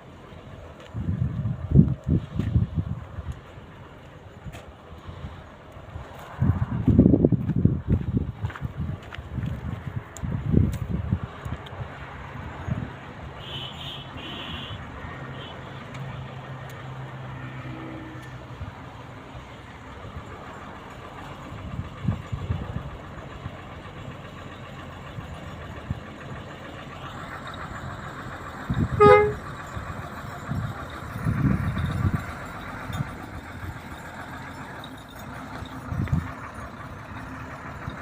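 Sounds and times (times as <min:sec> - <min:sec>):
road noise: 0:00.0 - 0:38.0
truck diesel engine running: 0:00.0 - 0:38.0
truck horn toot: 0:13.4 - 0:15.9, 0:28.9 - 0:29.6.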